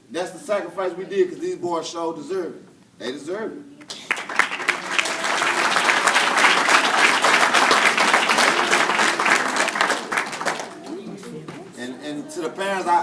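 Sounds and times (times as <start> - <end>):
audience applauding: 3.9 - 11.4.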